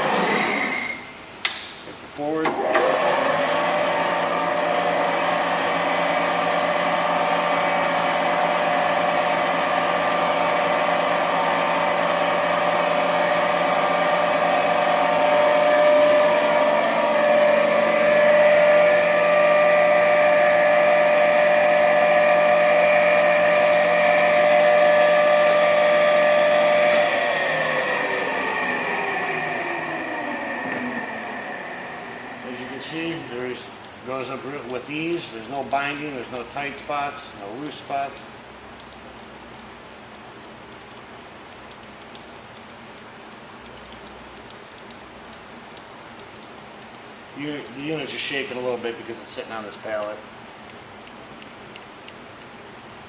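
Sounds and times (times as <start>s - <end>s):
grinder motor whining: 0.0s - 1.0s, 2.5s - 33.3s.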